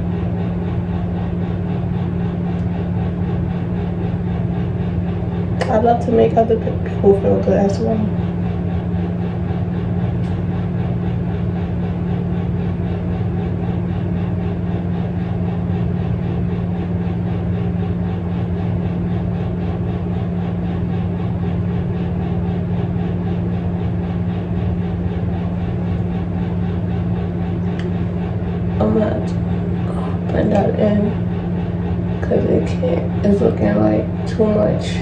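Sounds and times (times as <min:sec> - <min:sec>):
machine hum: 0:00.0 - 0:35.0.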